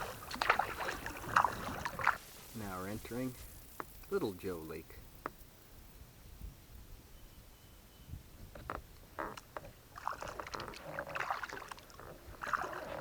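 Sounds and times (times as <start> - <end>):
paddle strokes splashing in water: 0.0 - 4.0, 9.3 - 13.0.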